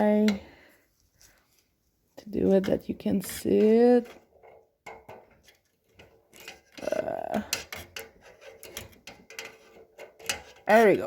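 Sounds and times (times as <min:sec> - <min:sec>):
wrench clicking and scraping metal: 0:06.0 - 0:10.9.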